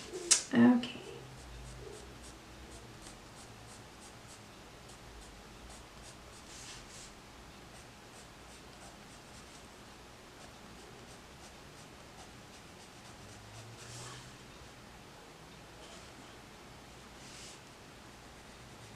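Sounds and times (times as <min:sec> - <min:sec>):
colored pencil scratching on paper: 0:01.0 - 0:07.1, 0:07.7 - 0:09.6, 0:10.4 - 0:14.4.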